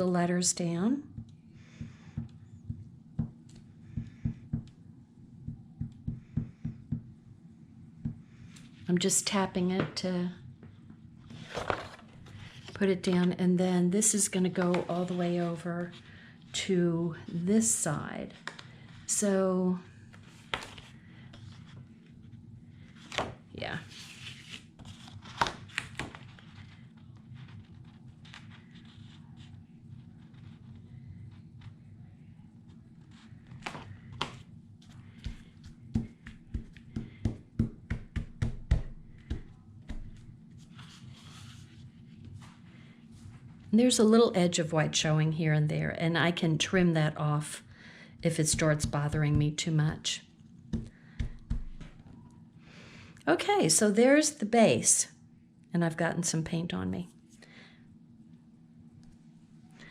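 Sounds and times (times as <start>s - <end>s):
low room hum: 0.0s - 59.9s
paper rustling: 11.3s - 13.2s, 22.9s - 31.8s, 32.7s - 37.2s, 39.2s - 42.6s
fingertips tapping paper: 33.0s - 40.3s.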